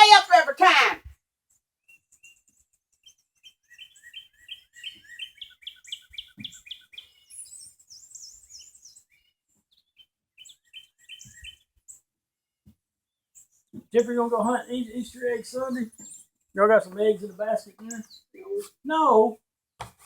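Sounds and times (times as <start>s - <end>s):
songbirds chirping: 0.0s - 12.1s, 13.1s - 19.4s
higher-pitched bird chirping: 16.8s - 18.7s.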